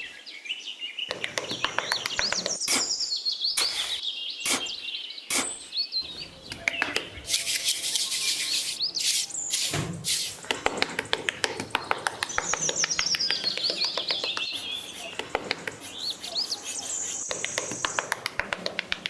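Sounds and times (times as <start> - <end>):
small birds chirping: 0.0 - 19.0
sharp clicks and knocks: 1.1 - 2.9, 6.0 - 7.7, 9.6 - 19.0.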